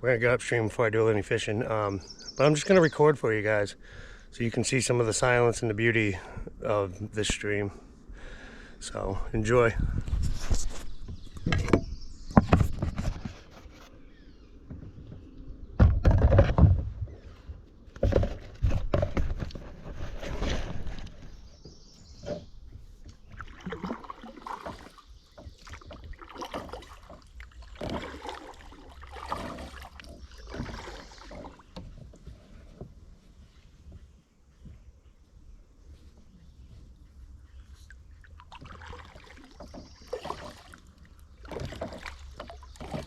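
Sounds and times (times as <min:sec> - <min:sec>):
paddle strokes splashing water: 0:18.9 - 0:34.1, 0:36.0 - 0:43.0
water dripping and sloshing: 0:22.7 - 0:32.5, 0:37.0 - 0:43.0
low thump and splash: 0:23.1 - 0:32.0, 0:38.3 - 0:43.0.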